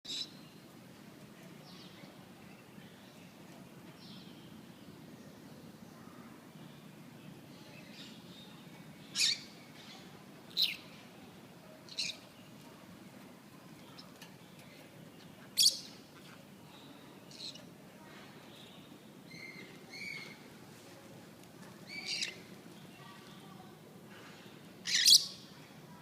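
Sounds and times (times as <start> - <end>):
parrots calling shrilly: 24.8 - 25.2
soft parrot chirps: 24.8 - 25.3.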